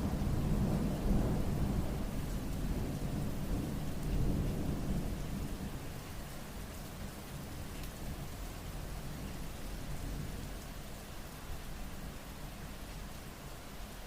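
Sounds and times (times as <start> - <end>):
rolling thunder rumble: 0.0 - 5.8
steady rain falling: 0.0 - 14.0.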